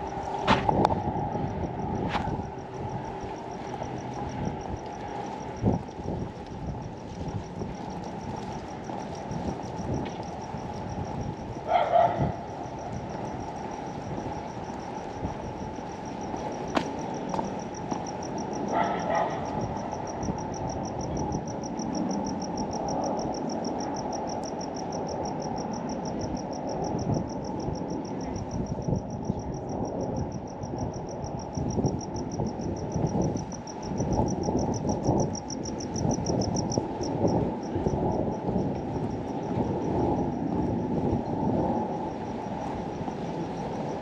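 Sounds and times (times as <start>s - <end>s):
low outdoor rumble: 0.0s - 31.4s
crickets chirping: 0.0s - 44.0s.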